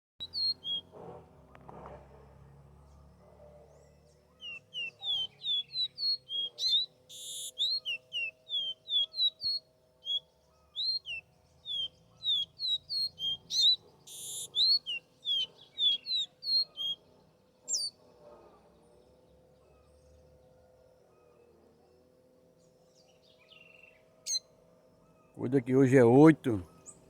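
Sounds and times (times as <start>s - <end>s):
songbird whistled notes: 0.2s - 0.9s, 4.3s - 17.0s, 17.7s - 17.9s, 23.3s - 24.5s
harsh buzzy bird notes: 4.4s - 10.2s, 10.8s - 17.0s.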